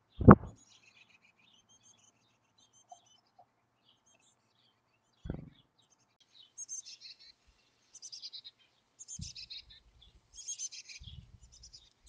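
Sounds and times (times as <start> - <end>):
loud thump: 0.2 - 0.5, 5.3 - 5.5.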